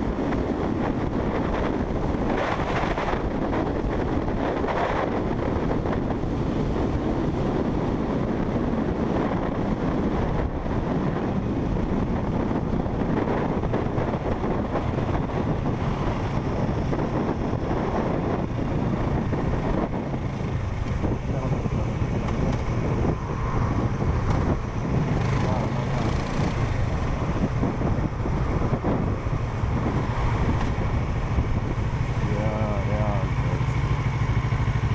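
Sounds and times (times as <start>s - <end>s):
motorcycle engine cruising: 0.0s - 34.9s
wind buffeting microphone: 0.0s - 34.9s.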